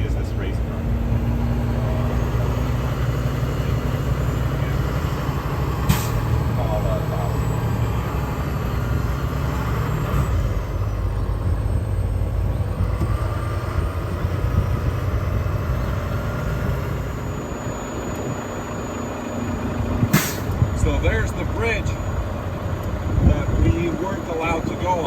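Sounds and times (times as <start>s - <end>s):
truck engine and road drone: 0.0s - 25.0s.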